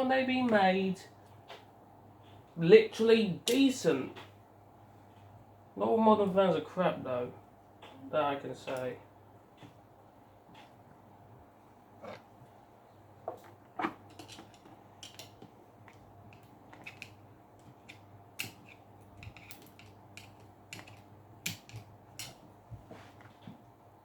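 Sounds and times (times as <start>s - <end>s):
faint steady hum: 0.0s - 24.0s
plastic parts clicking and rattling: 14.1s - 22.5s.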